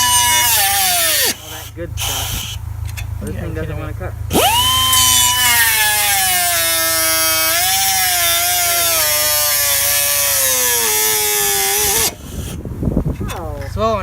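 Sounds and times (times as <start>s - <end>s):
power tool cutting metal pipe: 0.0s - 2.6s, 4.3s - 12.6s.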